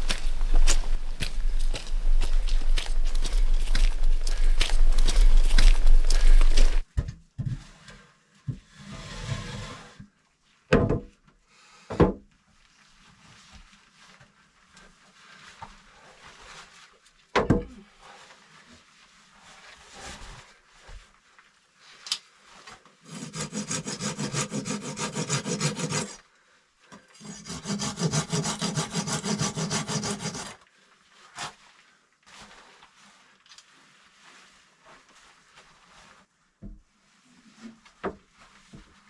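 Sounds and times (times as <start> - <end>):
saw cutting wood: 23.1 - 26.2, 27.2 - 30.6.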